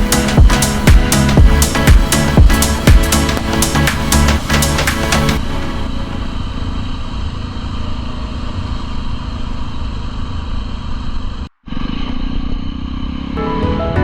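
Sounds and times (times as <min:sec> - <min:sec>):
motorcycle engine exhaust rumble: 0:05.3 - 0:13.4.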